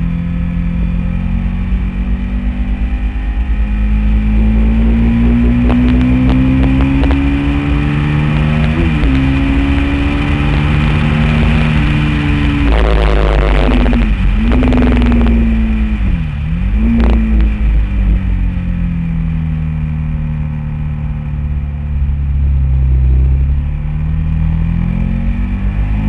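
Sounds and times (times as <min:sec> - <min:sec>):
motorcycle engine running hard: 0:00.0 - 0:19.3
wind rush on microphone: 0:01.6 - 0:19.9.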